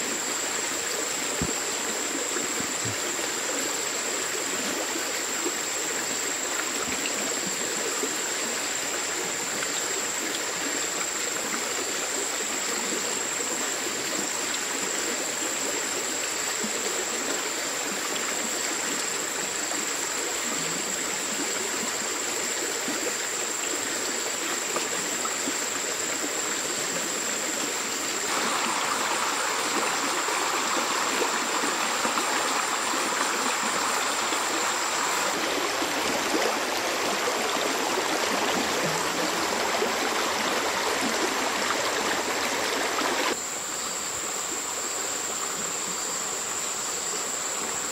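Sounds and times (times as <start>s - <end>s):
stream water rushing: 0.0s - 47.9s.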